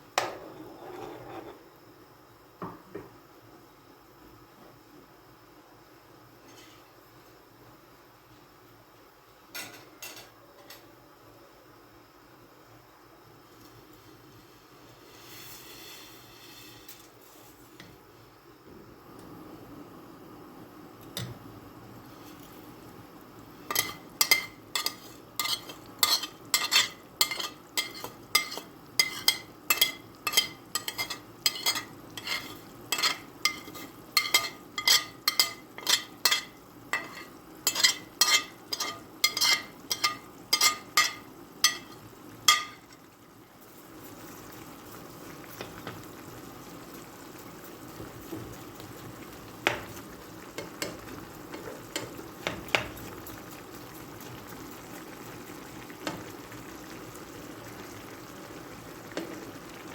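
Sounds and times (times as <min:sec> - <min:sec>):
food sizzling: 0:13.2 - 0:59.9
metal utensil clanking on pan: 0:23.7 - 0:43.0.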